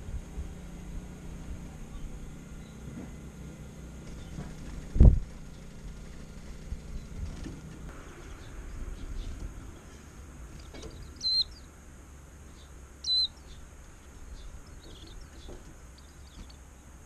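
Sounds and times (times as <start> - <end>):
faint bird chirps: 8.0 - 11.7, 12.5 - 16.9
songbird shrill calls: 10.9 - 11.7, 12.5 - 16.6.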